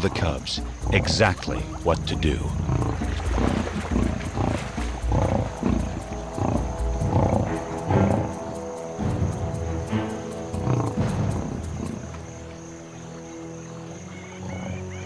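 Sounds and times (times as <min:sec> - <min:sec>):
lionesses growling: 0:00.0 - 0:15.0
music of held tones: 0:00.1 - 0:12.1.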